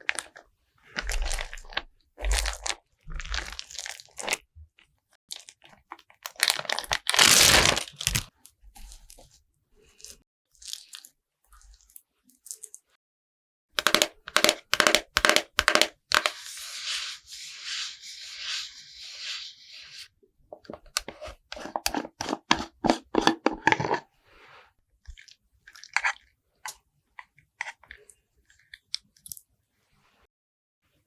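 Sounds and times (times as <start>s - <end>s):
scratchy brushing: 13.8s - 20.1s.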